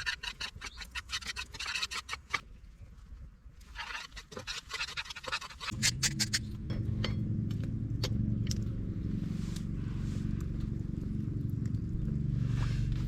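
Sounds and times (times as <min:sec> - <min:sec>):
steady low hum: 0:05.7 - 0:13.0.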